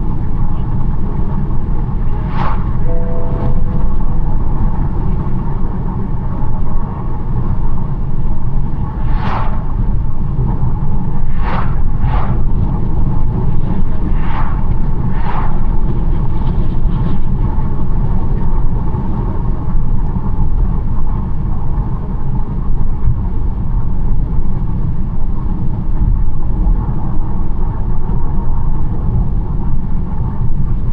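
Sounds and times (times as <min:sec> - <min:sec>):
car road and engine rumble: 0:00.0 - 0:30.9
short swishes: 0:09.1 - 0:09.7.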